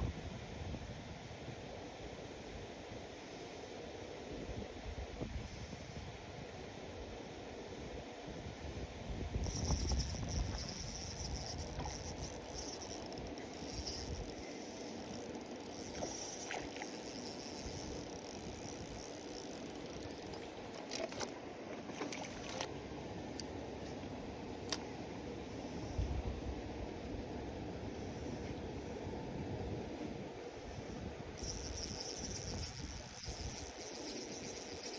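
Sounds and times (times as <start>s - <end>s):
wind buffeting microphone: 9.1s - 14.4s
moving water: 9.4s - 24.9s, 31.3s - 34.9s.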